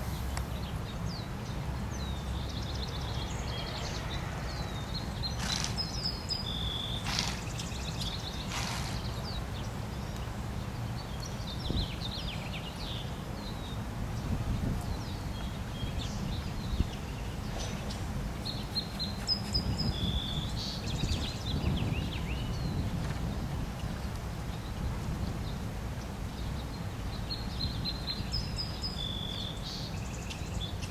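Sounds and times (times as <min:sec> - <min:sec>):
low outdoor rumble: 0:00.0 - 0:11.9
small birds chirping: 0:00.0 - 0:30.9.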